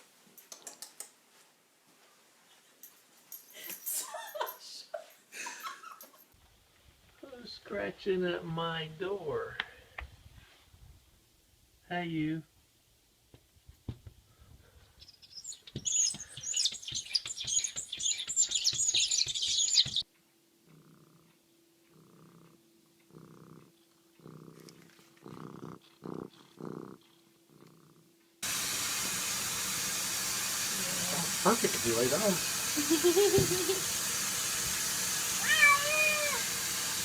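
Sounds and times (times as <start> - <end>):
cat purring: 20.6 - 28.2
steady hiss: 28.4 - 37.0.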